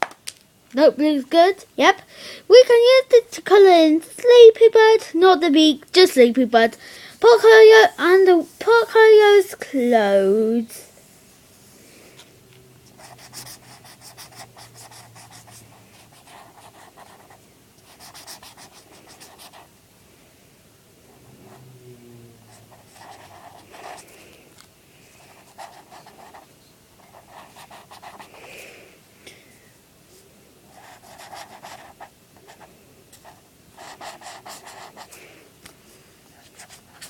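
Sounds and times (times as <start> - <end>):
marker scratching on paper: 12.9 - 19.7, 22.5 - 24.1, 25.3 - 26.4, 27.0 - 28.4, 30.7 - 35.2, 36.4 - 37.0.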